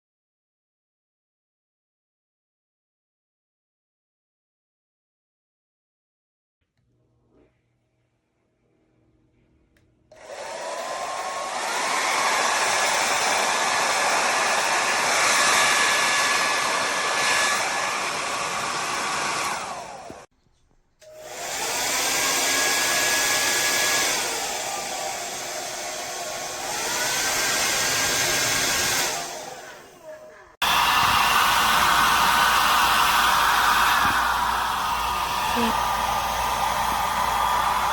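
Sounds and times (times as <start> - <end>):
hair dryer blowing: 10.1 - 20.3, 21.0 - 37.9.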